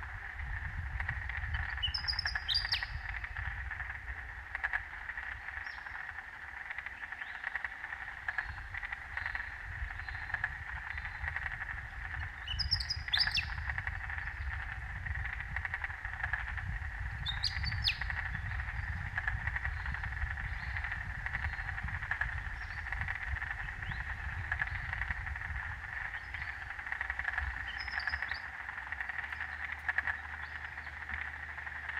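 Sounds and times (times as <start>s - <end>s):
frogs calling: 0.0s - 31.9s
bird calls: 1.4s - 3.4s, 5.2s - 14.6s, 17.2s - 25.2s, 25.9s - 31.9s.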